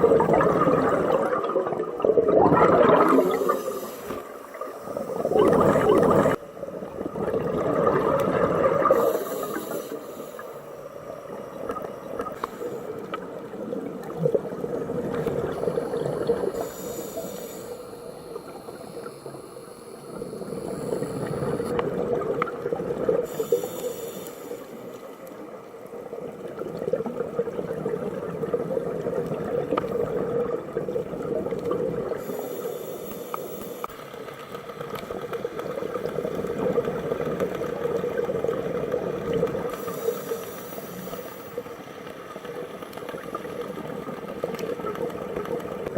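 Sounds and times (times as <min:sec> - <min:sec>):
exhaled bubbles gurgling: 0:00.0 - 0:33.9, 0:34.8 - 0:45.9
regulator inhale hiss: 0:03.1 - 0:06.4, 0:08.8 - 0:11.4, 0:12.0 - 0:13.3, 0:15.3 - 0:21.8, 0:23.2 - 0:25.6, 0:32.1 - 0:34.4, 0:39.7 - 0:42.1.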